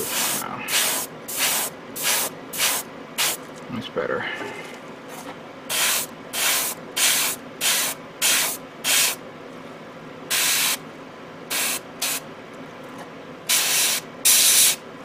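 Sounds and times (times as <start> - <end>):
airbrush spraying hiss: 0.0 - 3.4, 5.7 - 9.2, 10.3 - 10.8, 11.5 - 12.2, 13.5 - 14.8.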